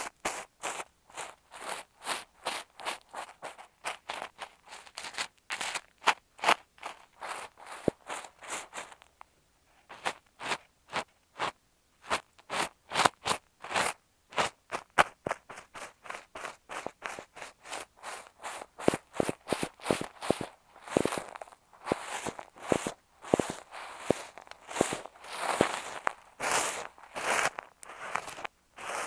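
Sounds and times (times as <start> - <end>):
sand crunching against microphone: 15.5 - 29.0.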